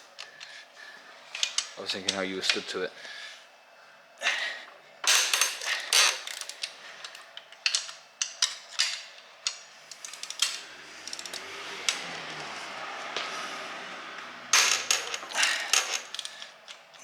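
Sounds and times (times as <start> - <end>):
wrench clicks and creaks: 5.6 - 12.2, 14.6 - 17.0.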